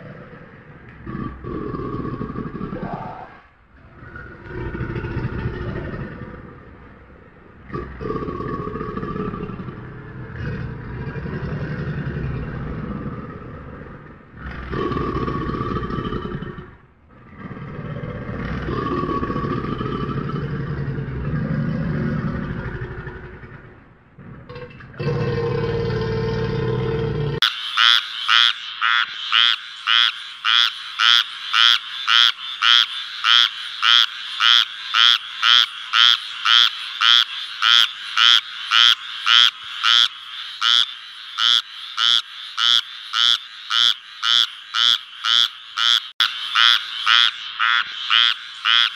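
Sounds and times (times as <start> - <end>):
crocodile growling: 0.0 - 27.4
frog croaking: 0.0 - 48.9.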